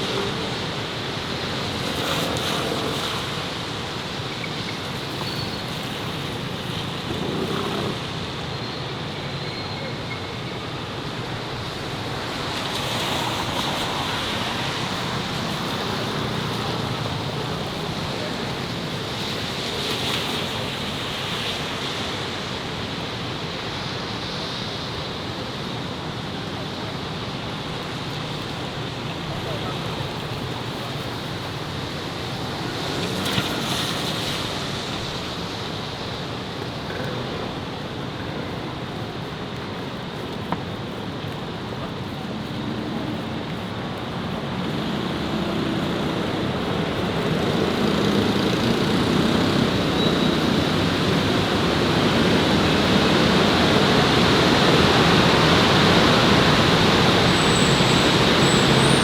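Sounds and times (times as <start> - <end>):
city street traffic roar: 0.0 - 59.0.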